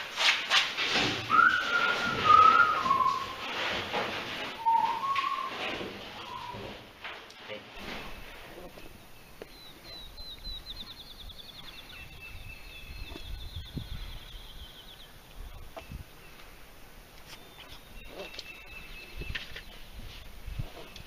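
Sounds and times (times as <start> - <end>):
songbird trilling: 9.1 - 15.2.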